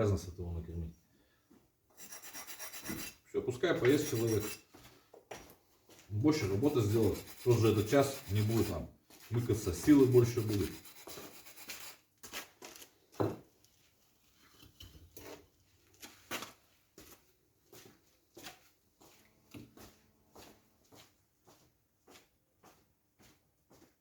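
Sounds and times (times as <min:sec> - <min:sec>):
bricklaying taps and scrapes: 0:01.9 - 0:17.2.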